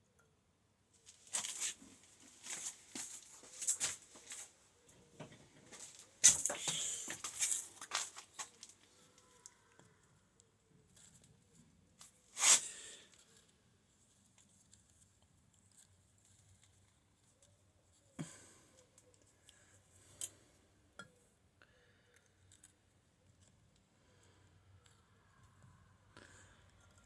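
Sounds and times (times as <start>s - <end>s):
scraping rustle: 1.1s - 4.6s, 5.7s - 8.8s.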